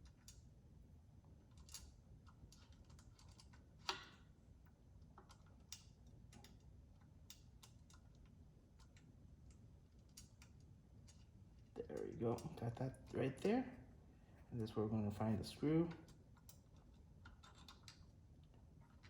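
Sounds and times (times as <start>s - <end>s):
small parts clicking and tapping: 1.5s - 4.3s, 15.9s - 19.0s.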